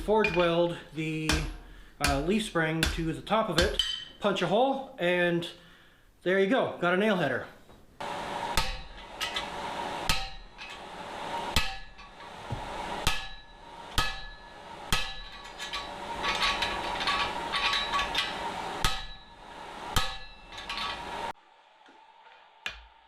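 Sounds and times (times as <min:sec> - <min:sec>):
hammer striking steel on anvil: 0:00.0 - 0:04.2, 0:08.4 - 0:21.4
steady hum: 0:08.0 - 0:21.4.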